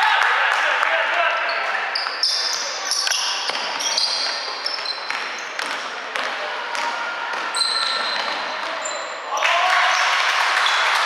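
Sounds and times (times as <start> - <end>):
sneakers squeaking on court: 1.4 - 9.3
basketball bouncing: 5.0 - 7.5.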